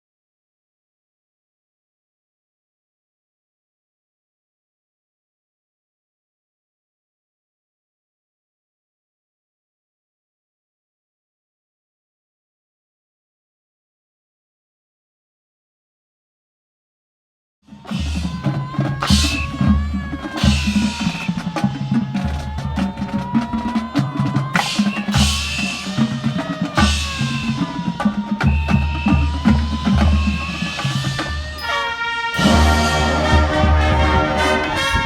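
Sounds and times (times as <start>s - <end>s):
siren-like wail: 17.7s - 35.0s
bass drums and snares pounding: 17.8s - 31.6s
brass held chord: 31.6s - 35.0s.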